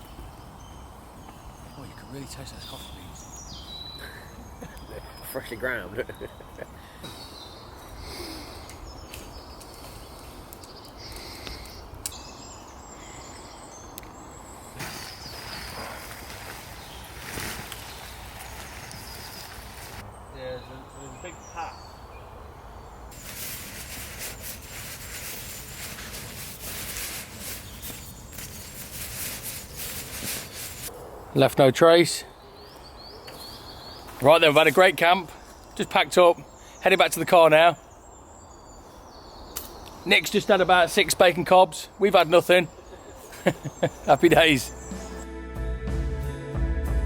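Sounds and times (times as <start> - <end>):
footsteps crunching dry leaves: 14.8 - 20.0, 23.1 - 30.9.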